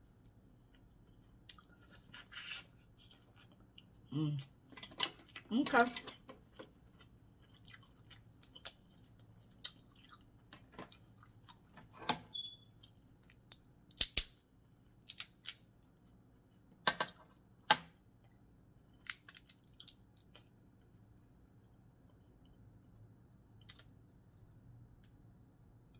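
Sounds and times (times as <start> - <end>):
quiet chewing: 0.6 - 11.8, 18.2 - 21.0
sharp shell cracks: 13.9 - 14.4.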